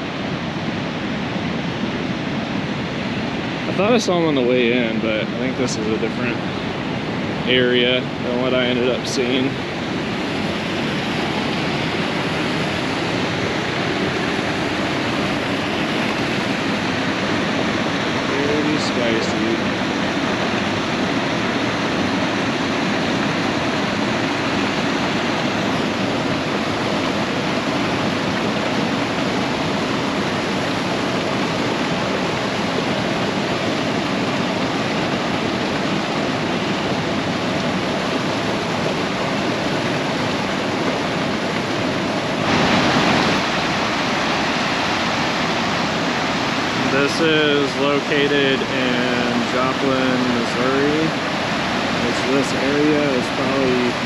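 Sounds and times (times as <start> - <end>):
waterfall pouring: 29.8 - 54.0.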